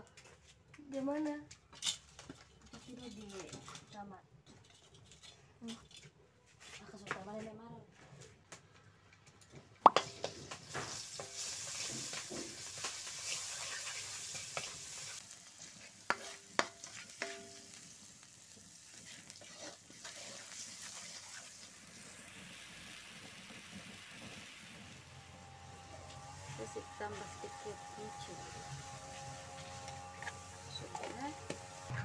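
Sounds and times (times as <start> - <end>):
metal spatula scraping wok: 2.7 - 6.1, 10.0 - 32.0
food sizzling in hot oil: 9.8 - 32.0.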